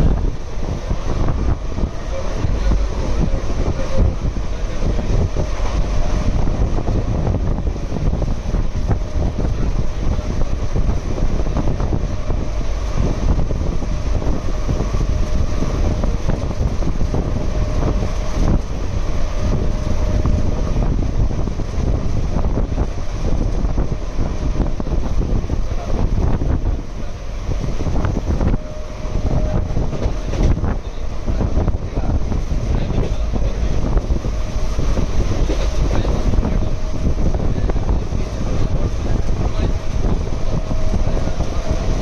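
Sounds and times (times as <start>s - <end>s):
train wheels clattering on rails: 0.0s - 42.0s
wind buffeting microphone: 0.0s - 42.0s.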